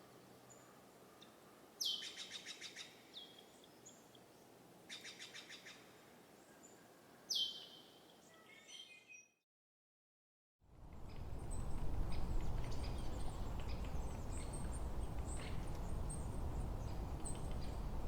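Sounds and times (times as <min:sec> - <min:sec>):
quiet outdoor hiss: 0:00.0 - 0:09.3, 0:10.7 - 0:18.0
faint bird chirps: 0:04.9 - 0:09.4
songbird whistle and trill: 0:07.3 - 0:09.3.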